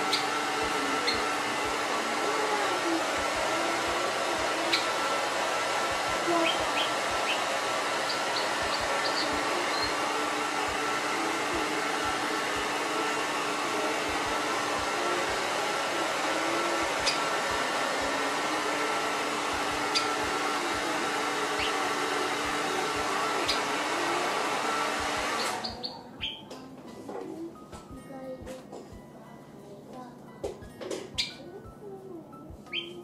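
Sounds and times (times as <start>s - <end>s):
hair dryer running: 0.0s - 25.9s
sparrow chirping: 0.1s - 0.4s, 6.4s - 7.4s, 8.1s - 9.9s, 19.9s - 20.2s, 21.6s - 21.8s, 25.4s - 26.5s, 31.1s - 31.4s, 32.7s - 33.0s.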